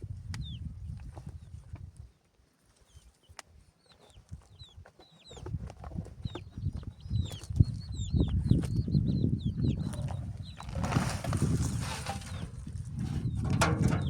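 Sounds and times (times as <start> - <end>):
birds chirping: 2.8 - 5.6, 6.2 - 14.0
low rumbling and knocking: 12.0 - 14.0.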